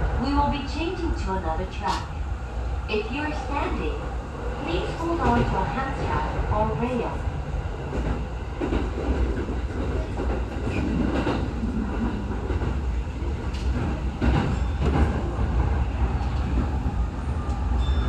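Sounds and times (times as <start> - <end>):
train interior rumble: 0.0 - 18.0
train wheel clacks: 7.9 - 16.9.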